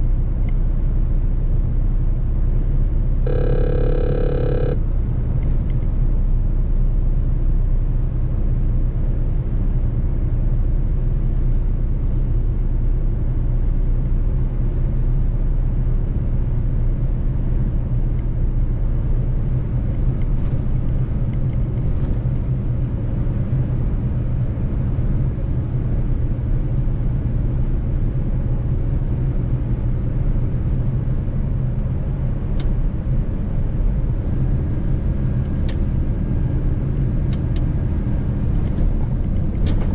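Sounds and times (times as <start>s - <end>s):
road rumble: 0.0s - 39.9s
truck diesel engine droning: 3.3s - 5.1s.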